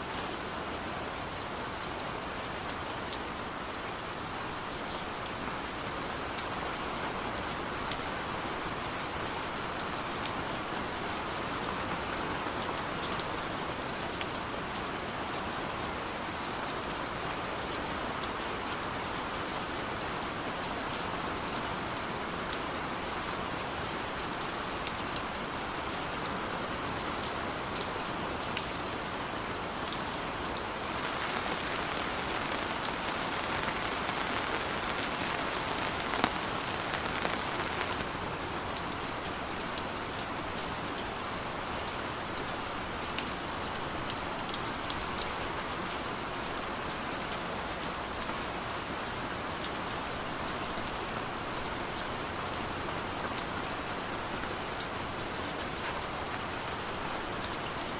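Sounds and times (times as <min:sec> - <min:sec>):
heavy rain falling: 0:29.8 - 0:39.4
sharp drop ticks: 0:30.9 - 0:38.1.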